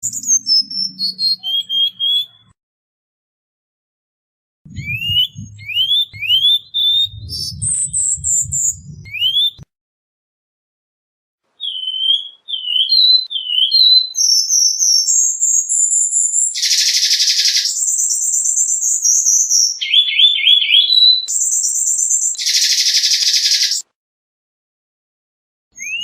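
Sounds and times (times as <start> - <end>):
bird singing whistles and trills: 0.0 - 2.6, 4.7 - 9.6, 11.6 - 23.8, 25.8 - 26.0.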